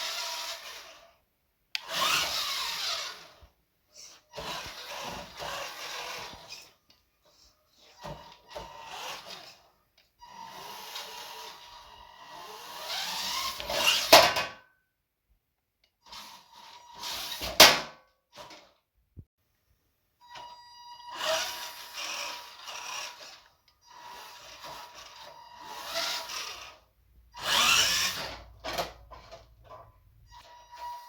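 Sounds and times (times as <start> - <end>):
power tool cutting: 1.8 - 3.3, 24.0 - 26.8, 27.4 - 28.4.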